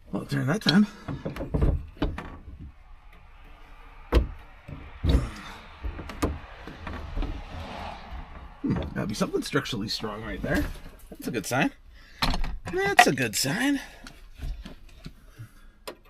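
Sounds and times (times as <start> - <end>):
knocks and thumps of tools: 0.7 - 2.7, 12.2 - 13.1.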